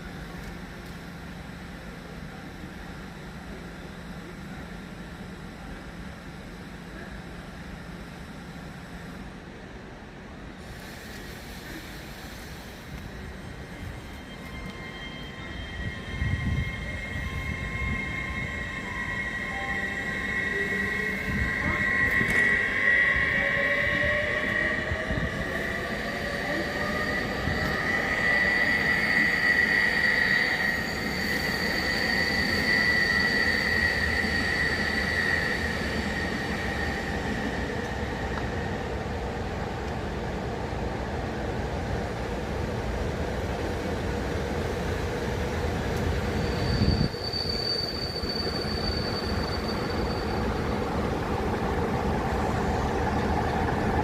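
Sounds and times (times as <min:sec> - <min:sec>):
train running on track: 0:00.0 - 0:54.0
train wheels squealing: 0:10.5 - 0:39.7, 0:43.6 - 0:54.0.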